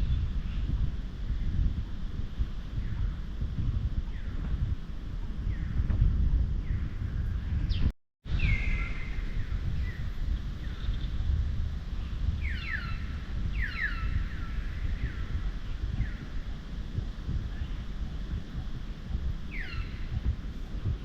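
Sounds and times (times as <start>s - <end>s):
wind buffeting microphone: 0.0s - 21.0s
high chirping calls: 12.4s - 16.4s, 19.5s - 20.4s.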